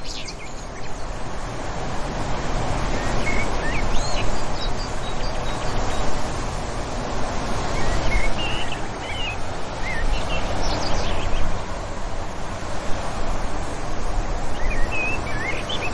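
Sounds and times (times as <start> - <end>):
wind with low rumble: 0.0 - 15.9
distant birds chirping: 14.3 - 15.9.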